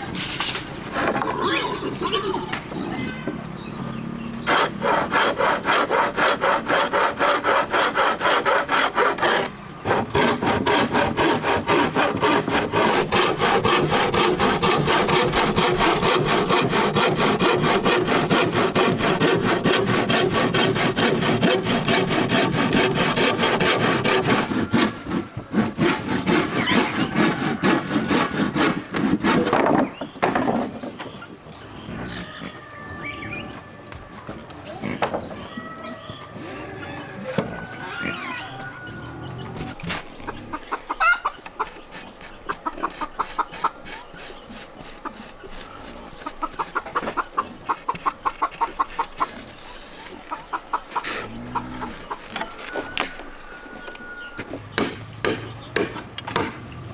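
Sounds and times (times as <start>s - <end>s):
hand saw cutting wood: 4.4s - 29.7s, 39.7s - 53.2s, 54.7s - 56.6s.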